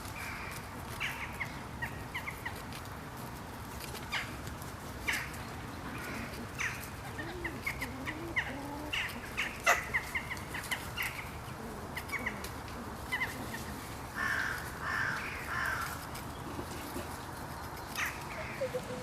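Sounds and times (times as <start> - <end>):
harsh rasping bird calls: 0.2 - 2.6, 5.0 - 19.0
birds chirping: 5.0 - 19.0.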